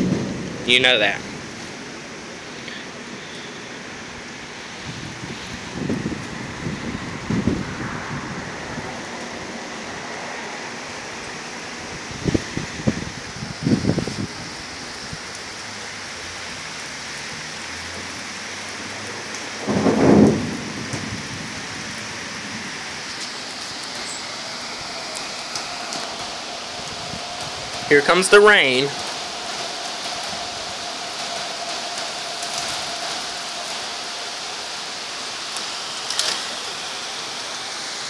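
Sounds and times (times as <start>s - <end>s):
low rumbles of thunder: 0.0s - 1.8s, 4.8s - 10.2s, 19.6s - 23.2s, 24.6s - 28.2s
steady rain falling: 0.0s - 38.0s.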